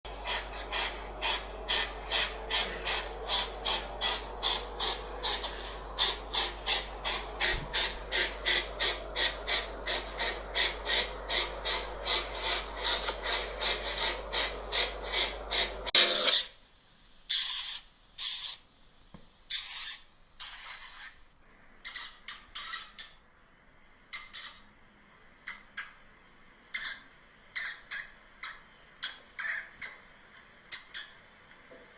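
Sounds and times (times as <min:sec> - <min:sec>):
small animal hissing puffs: 0:00.1 - 0:16.4, 0:17.3 - 0:18.6.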